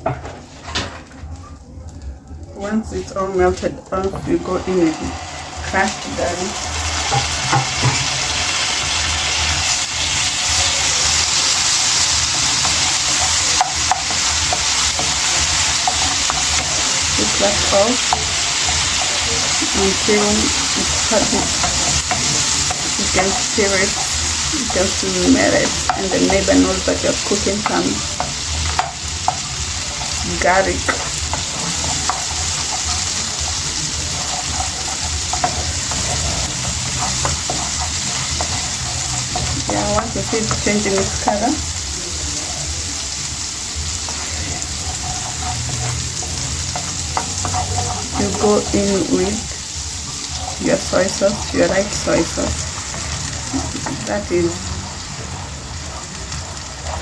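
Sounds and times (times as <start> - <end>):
garlic sizzling in butter: 2.9 - 57.0
utensil clicking against pan: 20.6 - 41.7, 44.1 - 48.9.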